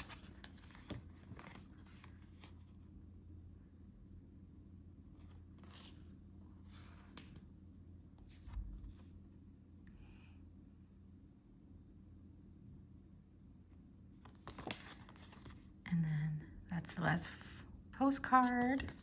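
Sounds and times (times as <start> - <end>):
postcards rustling and clicking: 0.0 - 2.6, 14.3 - 15.6, 18.4 - 19.0
low electrical hum: 0.0 - 19.0.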